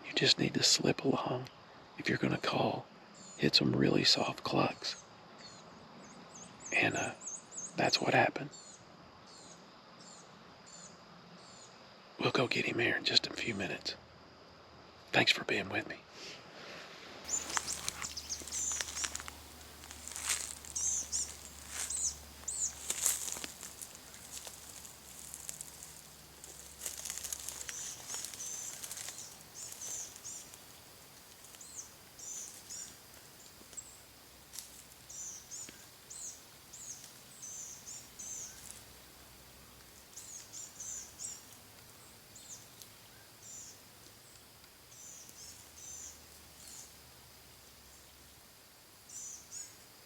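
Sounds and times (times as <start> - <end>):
songbird chirping: 0.0 - 16.0, 17.3 - 50.0
rustling: 17.0 - 41.9.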